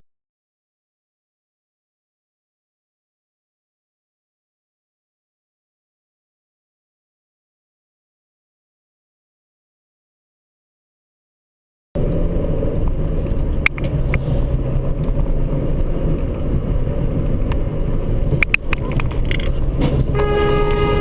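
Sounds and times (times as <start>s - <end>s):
car rumbling in traffic: 12.0s - 21.0s
sharp clicks: 13.6s - 14.2s, 18.4s - 19.6s
car horn: 20.0s - 21.0s.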